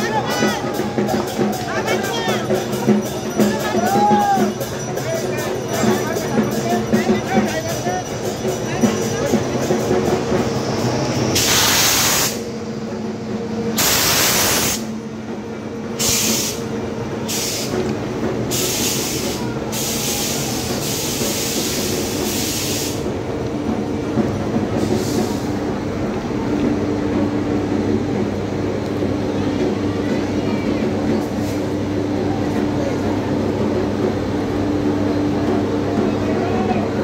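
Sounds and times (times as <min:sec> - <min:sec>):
train humming: 0:00.0 - 0:37.0
short bursts of hiss: 0:11.4 - 0:12.4, 0:13.8 - 0:14.9, 0:16.0 - 0:16.6, 0:18.5 - 0:23.1.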